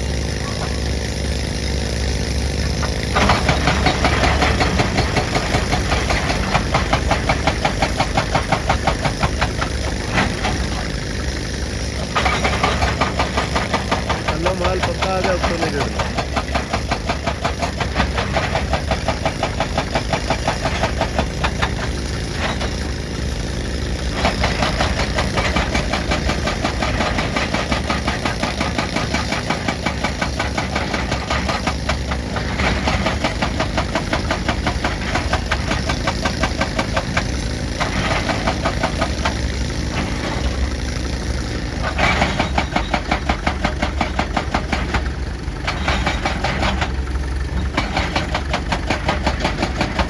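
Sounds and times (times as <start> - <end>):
diesel engine running: 0.0 - 50.0
hydraulic breaker pounding rock: 0.0 - 50.0.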